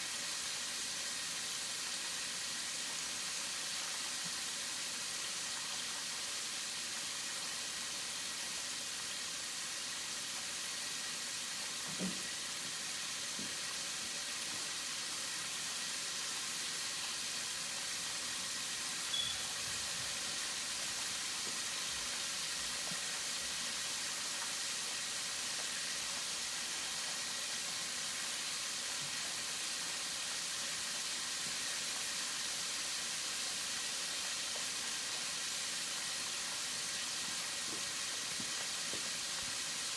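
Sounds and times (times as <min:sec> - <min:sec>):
chicken wings sizzling: 0:00.0 - 0:39.9.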